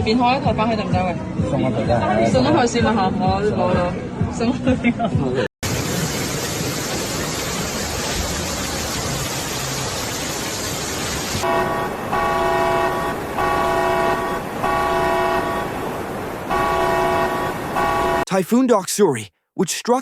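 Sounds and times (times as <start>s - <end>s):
steady rushing noise: 11.2s - 18.2s
vehicle horn honking: 11.4s - 18.3s.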